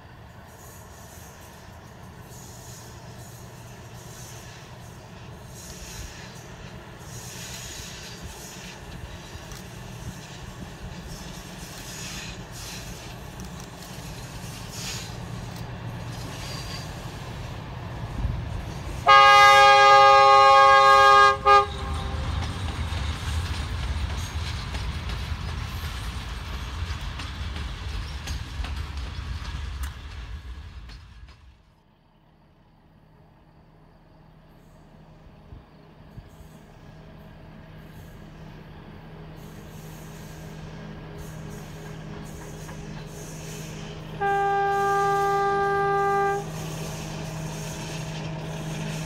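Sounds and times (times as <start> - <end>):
train rumbling: 0.0 - 49.0
train horn blast: 19.0 - 22.4, 44.1 - 46.9
short horn toot: 44.2 - 46.6.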